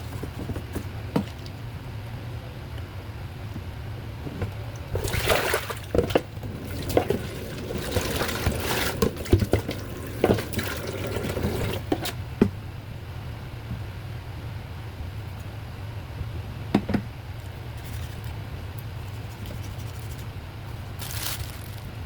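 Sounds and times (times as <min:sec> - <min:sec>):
small knocks and clatters: 0:00.0 - 0:01.6, 0:03.6 - 0:12.6
steady low hum: 0:00.0 - 0:22.0
water pouring and splashing: 0:04.9 - 0:12.1.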